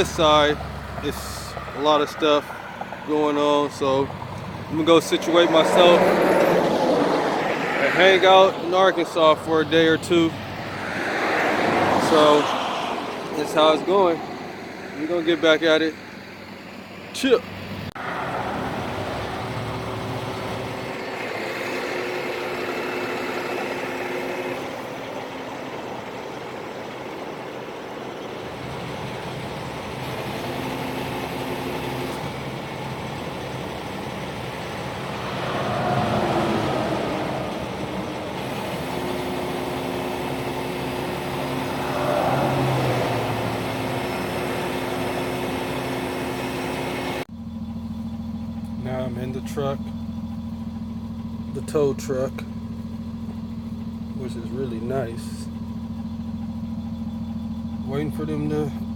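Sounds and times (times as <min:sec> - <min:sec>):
passing vehicle noise: 0:00.0 - 0:47.3
truck engine idling: 0:00.0 - 0:58.9.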